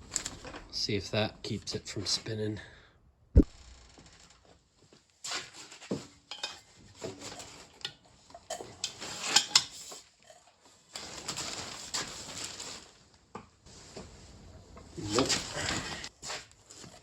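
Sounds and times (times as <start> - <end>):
hand tools clinking on metal: 6.3 - 10.0.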